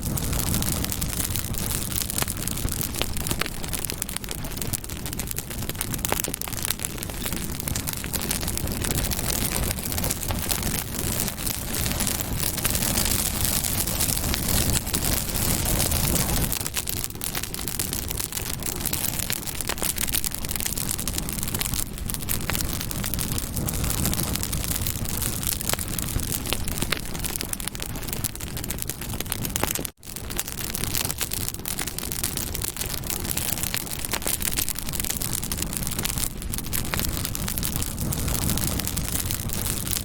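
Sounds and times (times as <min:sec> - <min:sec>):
campfire flames rushing: 0:00.0 - 0:40.0
wood crackling and popping: 0:00.0 - 0:40.0.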